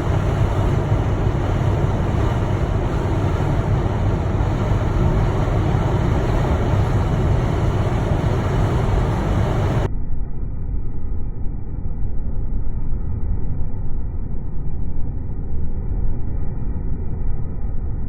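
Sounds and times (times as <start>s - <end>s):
blizzard wind rushing: 0.0s - 9.9s.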